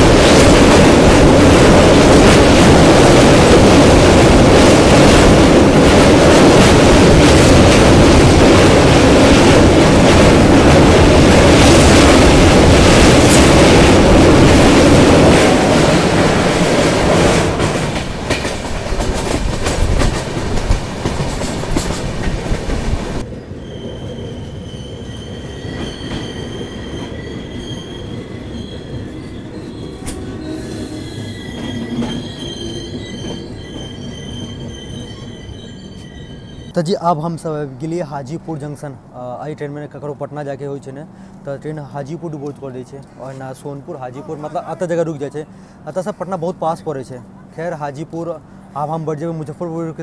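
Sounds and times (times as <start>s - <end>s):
train wheels rushing on rail: 0.0s - 37.0s
wheels squealing on rail: 23.2s - 36.8s.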